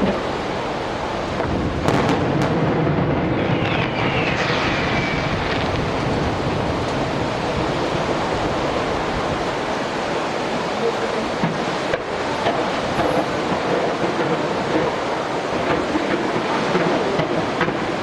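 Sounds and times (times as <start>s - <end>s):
firework bursts rumbling: 0.0s - 10.4s, 11.1s - 18.0s
firework whistling: 1.3s - 7.3s.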